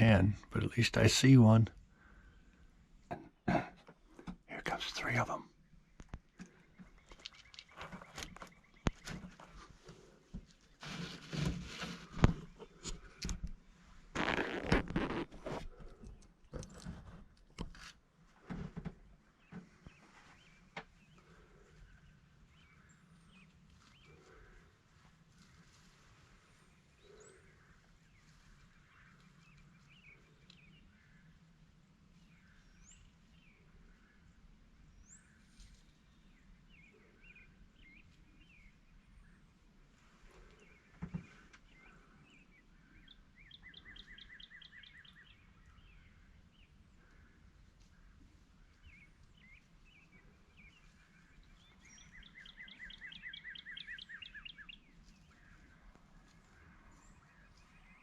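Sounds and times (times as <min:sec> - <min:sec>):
small songbirds chirping: 0:00.0 - 0:17.0, 0:19.0 - 0:58.0.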